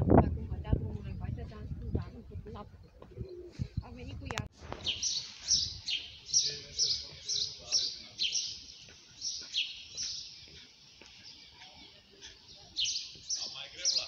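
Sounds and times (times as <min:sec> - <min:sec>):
birds chirping: 0:00.6 - 0:14.0.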